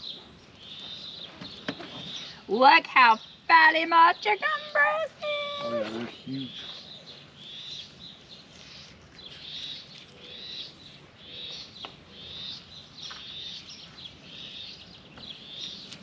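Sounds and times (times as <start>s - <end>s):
bird peeping: 0.0s - 4.8s, 5.4s - 16.0s.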